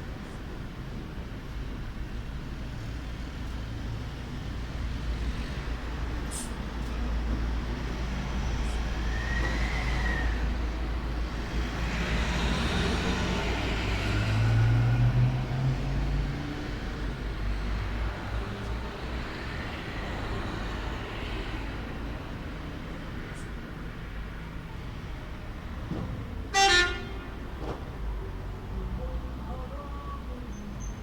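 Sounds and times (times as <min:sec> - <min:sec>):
vehicle passing on road: 0:04.2 - 0:23.5.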